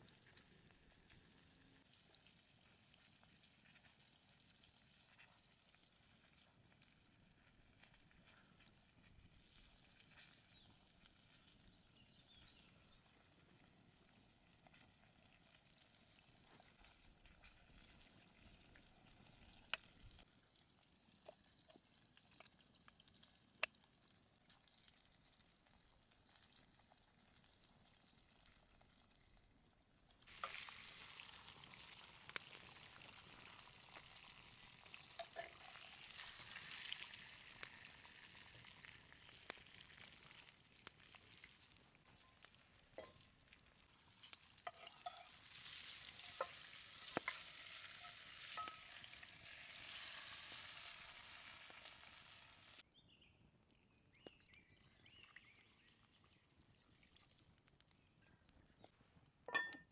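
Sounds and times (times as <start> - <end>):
meat sizzling in a pan: 30.3 - 52.8.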